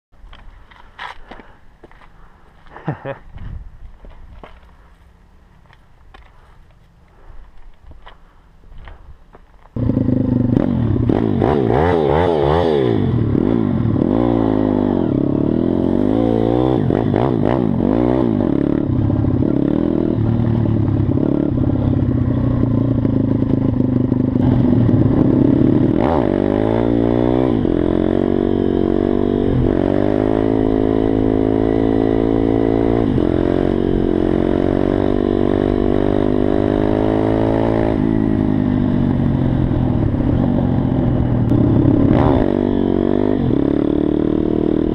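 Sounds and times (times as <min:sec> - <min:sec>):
motorbike engine revving hard: 0:09.8 - 0:44.9.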